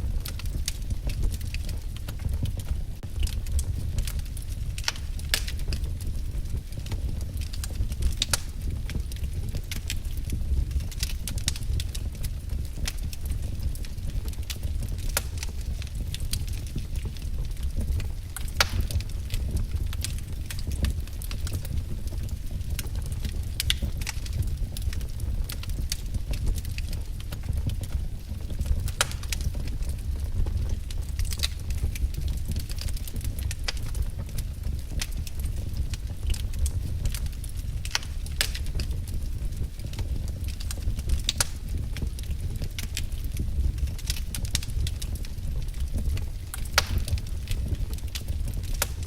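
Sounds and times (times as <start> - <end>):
firewood crackling and popping: 0.0 - 49.0
low fire rumble: 0.0 - 49.0.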